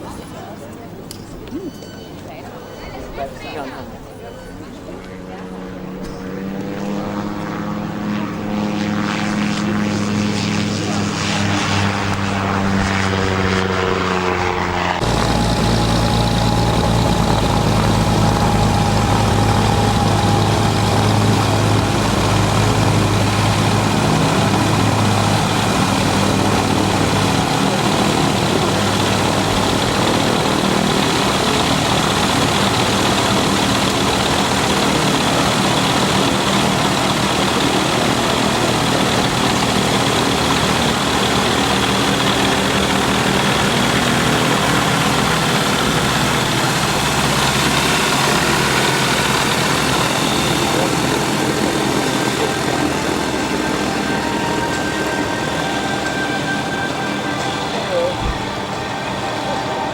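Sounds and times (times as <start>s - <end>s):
propeller aircraft engine: 2.4s - 59.9s.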